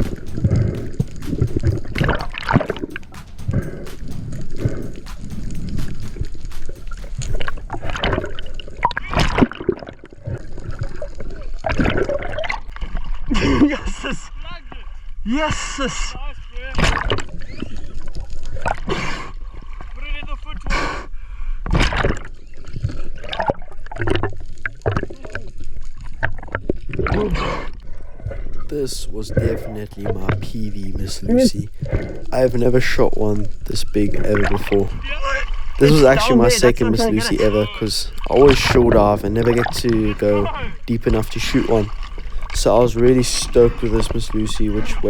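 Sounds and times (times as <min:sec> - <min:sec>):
loud splash: 0:00.0 - 0:12.6, 0:31.7 - 0:45.0
water gurgling and sloshing: 0:00.0 - 0:45.0.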